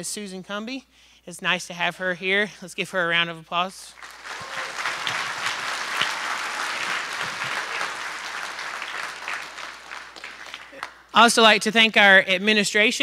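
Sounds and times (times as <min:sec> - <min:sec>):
audience applauding: 0:04.0 - 0:11.1.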